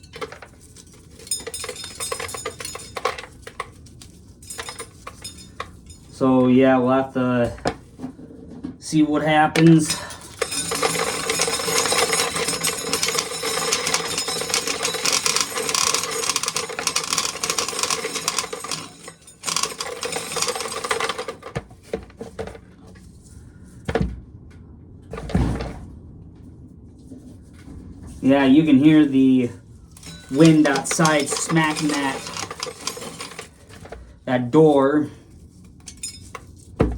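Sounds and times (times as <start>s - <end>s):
corn sheller rattling: 0.0s - 6.2s, 9.6s - 22.6s, 30.0s - 34.1s.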